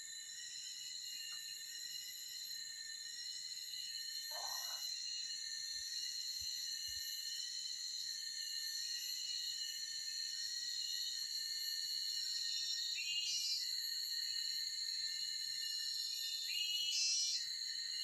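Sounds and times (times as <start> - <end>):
insects chorus: 0.0 - 18.0.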